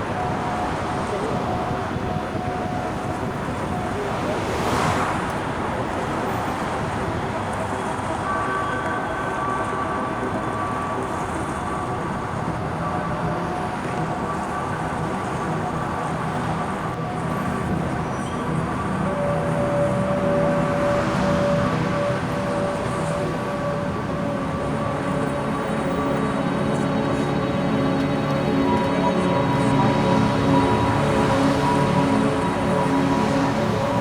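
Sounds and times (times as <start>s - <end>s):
city traffic noise: 0.0s - 34.0s
long held tones: 8.1s - 34.0s.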